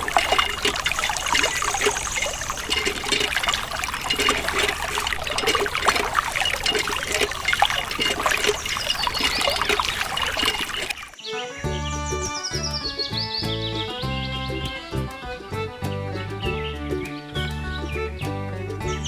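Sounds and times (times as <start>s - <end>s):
water trickling: 0.0s - 11.5s
background music with beat: 11.6s - 19.0s.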